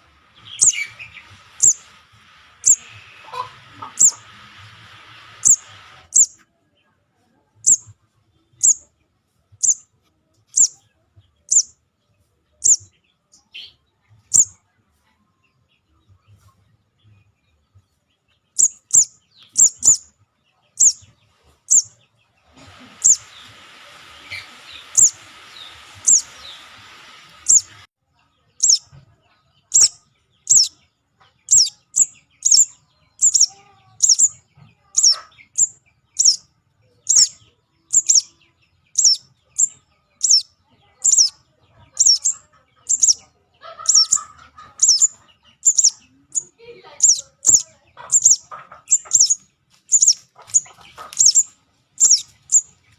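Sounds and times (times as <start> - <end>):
bird high chirps: 0.3 - 2.0, 2.6 - 6.4, 7.6 - 8.9, 9.6 - 9.9, 10.5 - 10.9, 11.5 - 11.8, 12.6 - 14.6, 18.5 - 22.0, 22.6 - 27.9, 28.6 - 29.0, 29.6 - 52.9
steady hiss: 4.1 - 6.1, 22.7 - 27.9.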